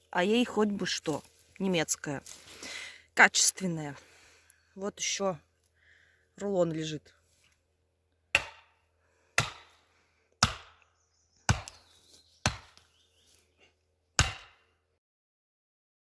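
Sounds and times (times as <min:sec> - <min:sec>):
tool striking wood: 0:08.3 - 0:08.8, 0:09.4 - 0:09.8, 0:10.4 - 0:10.9, 0:11.5 - 0:11.8, 0:12.4 - 0:12.8, 0:14.2 - 0:14.7.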